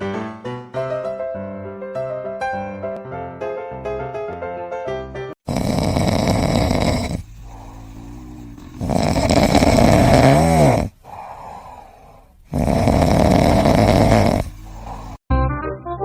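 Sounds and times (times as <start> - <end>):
loud snoring: 5.4 - 15.3
squeak in snore: 5.5 - 10.9, 12.5 - 15.2.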